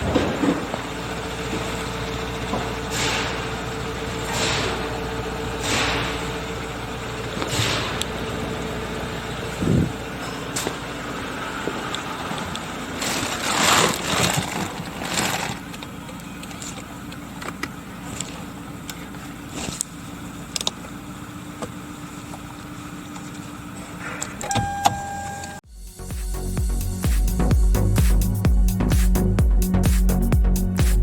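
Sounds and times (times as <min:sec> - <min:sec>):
car engine idling: 0:00.0 - 0:31.0
short electronic beep: 0:24.5 - 0:25.6.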